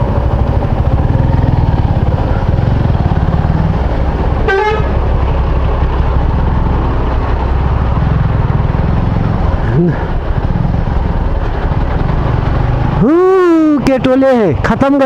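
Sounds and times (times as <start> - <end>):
motorcycle engine running: 0.0 - 15.0
vehicle horn toot: 4.4 - 5.0.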